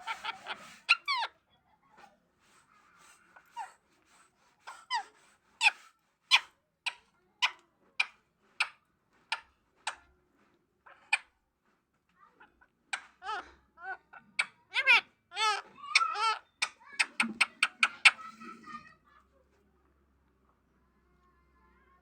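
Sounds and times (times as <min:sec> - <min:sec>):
parrot calling: 0:13.2 - 0:18.9.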